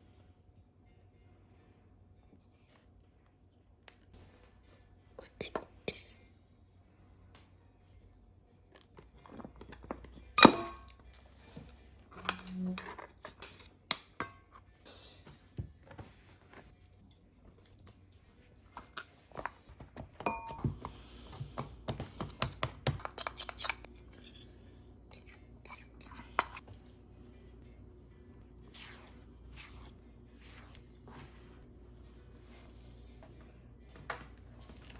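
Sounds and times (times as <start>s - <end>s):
bowls and utensils clinking: 9.5s - 11.1s, 20.2s - 21.4s, 22.6s - 27.5s.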